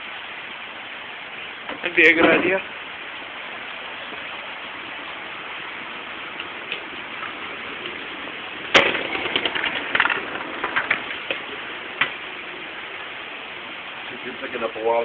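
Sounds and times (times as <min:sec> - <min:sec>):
hard rain falling: 0:00.0 - 0:15.0
small clicks and crackles: 0:06.3 - 0:08.1, 0:08.7 - 0:12.2
sharp crack: 0:08.6 - 0:13.0.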